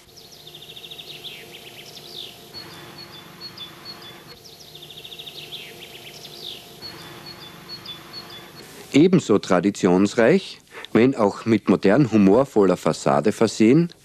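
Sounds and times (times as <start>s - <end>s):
songbird singing: 0.0s - 8.9s
faint steady hum: 0.0s - 14.0s.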